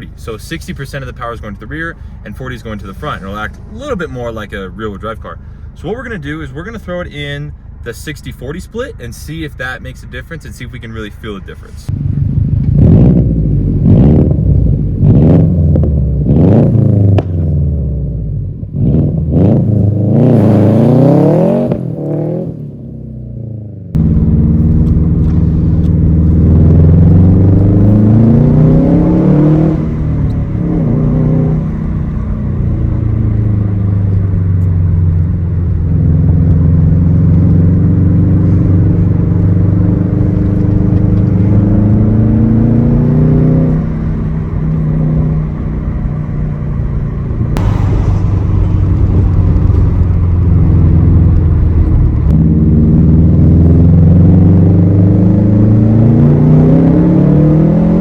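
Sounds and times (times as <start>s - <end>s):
car engine accelerating: 11.9s - 58.0s.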